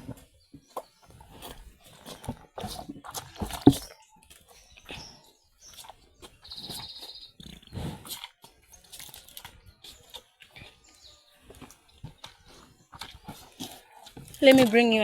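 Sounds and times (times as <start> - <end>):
cow slurping and gulping water: 0.0 - 15.0
bucket knocks: 3.4 - 3.9.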